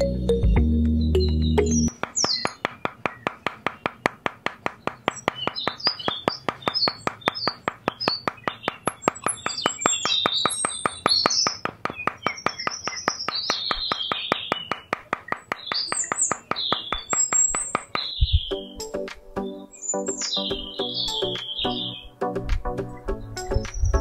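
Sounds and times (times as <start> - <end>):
birds chirping: 0.0 - 24.0
hammer tapping stakes into sand: 1.9 - 18.2.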